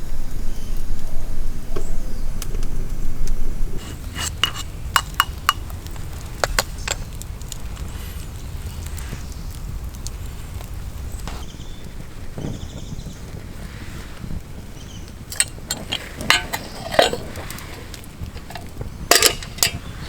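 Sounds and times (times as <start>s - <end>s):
steady low rumble: 0.0s - 20.0s
cookware clinking: 3.8s - 5.6s, 15.3s - 17.7s, 18.4s - 19.9s.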